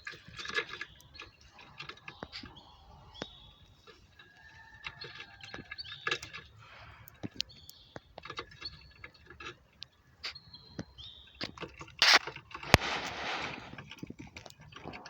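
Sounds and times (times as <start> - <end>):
finches chirping: 0.6 - 4.0, 4.6 - 9.2, 9.8 - 11.6.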